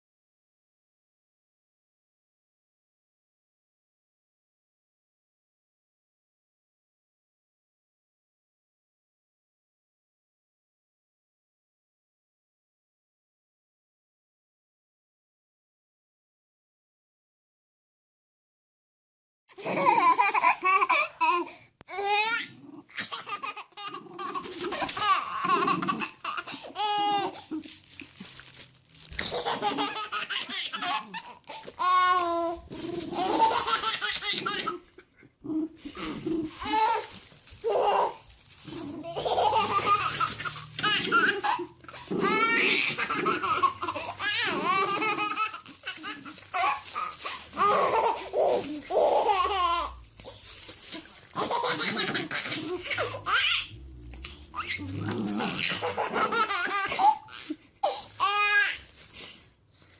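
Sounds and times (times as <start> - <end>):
baby laughing: 19.5 - 27.8, 29.2 - 35.1, 35.8 - 53.7, 55.5 - 59.0.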